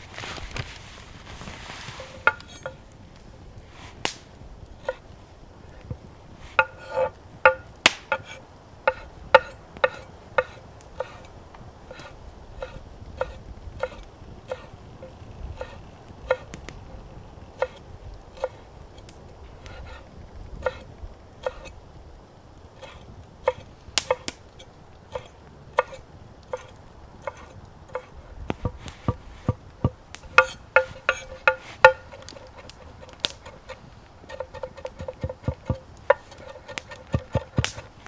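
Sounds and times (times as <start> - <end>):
knife chopping on wooden board: 34.3 - 37.9.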